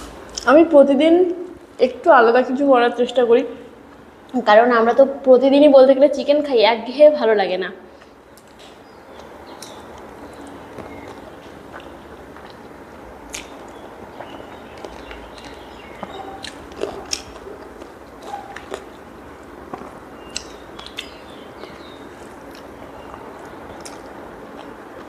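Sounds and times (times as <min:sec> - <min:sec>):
person chewing food: 0:08.0 - 0:25.0.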